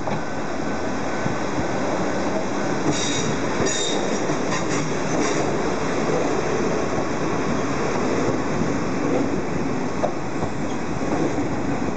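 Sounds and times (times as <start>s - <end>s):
train cars rumbling on rails: 0.0s - 11.9s
high wheel squeals: 3.0s - 4.2s.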